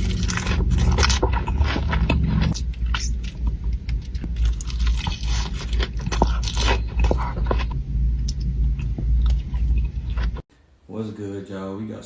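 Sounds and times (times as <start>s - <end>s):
crunchy food being chewed: 0.0s - 10.5s
steady low rumble: 0.0s - 10.5s.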